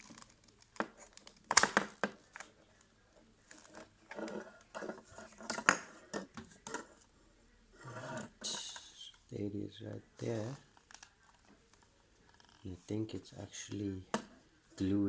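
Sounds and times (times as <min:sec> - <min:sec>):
plastic headphone clicking and creaking: 0:00.0 - 0:02.6, 0:03.4 - 0:06.9, 0:10.5 - 0:12.7.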